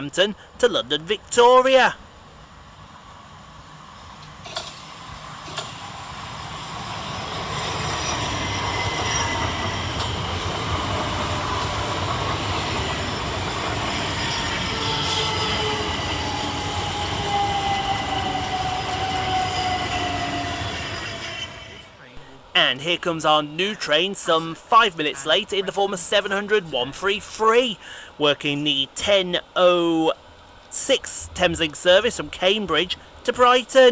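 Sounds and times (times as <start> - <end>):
electric trains running through: 0.0 - 33.9
train whine falling in pitch: 4.2 - 21.9.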